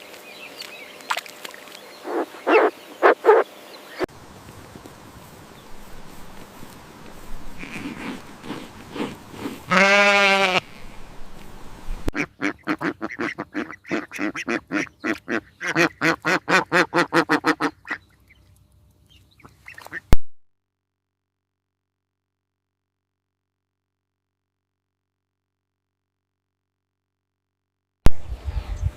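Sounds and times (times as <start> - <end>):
farm animal calling: 2.0 - 4.1, 7.5 - 10.9, 12.2 - 18.4.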